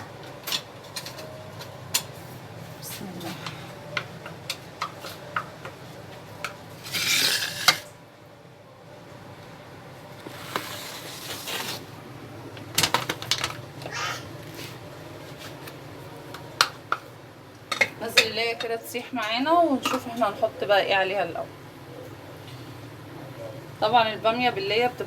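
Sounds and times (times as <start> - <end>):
metal pot and utensils clinking: 17.7 - 18.8.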